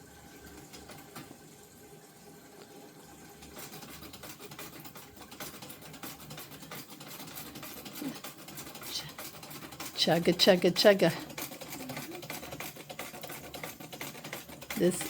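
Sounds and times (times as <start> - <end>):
sewing machine clicking: 3.4 - 15.0.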